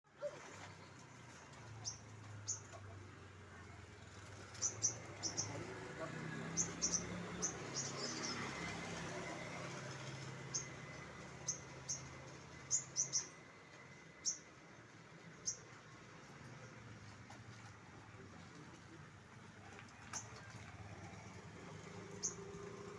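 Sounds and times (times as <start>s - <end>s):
songbird chirping: 4.4s - 8.7s, 21.4s - 22.9s.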